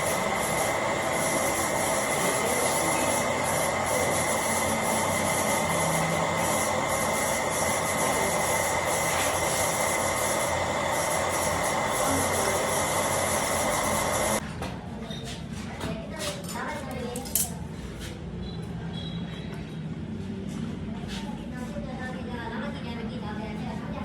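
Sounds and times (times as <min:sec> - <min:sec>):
constant high whine: 0:00.0 - 0:14.4
power tool working metal: 0:00.0 - 0:14.4.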